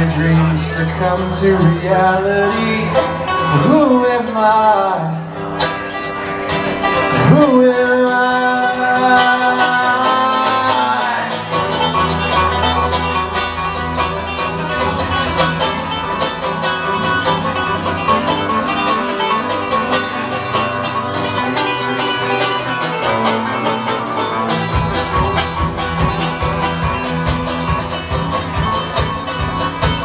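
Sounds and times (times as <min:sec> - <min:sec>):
band playing instrumental: 0:00.0 - 0:30.0
heavy low bass notes: 0:11.3 - 0:30.0.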